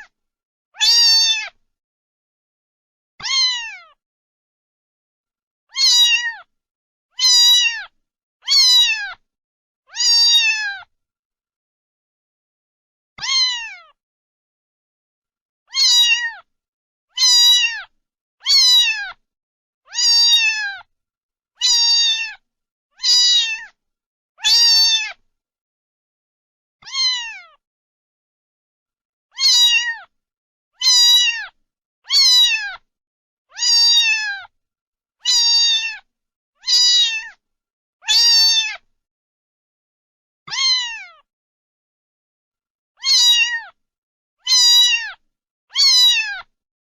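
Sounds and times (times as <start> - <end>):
cat meowing: 0.8 - 1.6, 3.2 - 4.0, 5.7 - 6.5, 7.2 - 9.2, 9.9 - 10.9, 13.2 - 14.0, 15.7 - 16.5, 17.1 - 19.2, 19.9 - 20.9, 21.6 - 22.4, 23.0 - 23.8, 24.4 - 25.2, 26.8 - 27.6, 29.3 - 30.1, 30.8 - 32.9, 33.5 - 34.5, 35.2 - 37.4, 38.0 - 38.8, 40.5 - 41.3, 43.0 - 43.8, 44.4 - 46.5.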